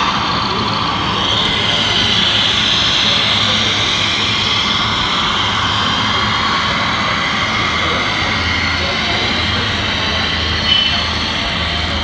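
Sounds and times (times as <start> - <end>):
high-pitched mechanical whine: 0.0 - 12.0.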